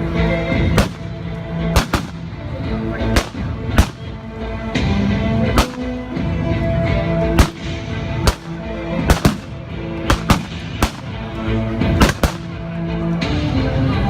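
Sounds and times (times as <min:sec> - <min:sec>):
music with held notes: 0:00.0 - 0:14.0
sharp gunshots: 0:00.7 - 0:02.4, 0:03.1 - 0:04.2, 0:05.5 - 0:06.1, 0:07.4 - 0:11.3, 0:11.9 - 0:12.6.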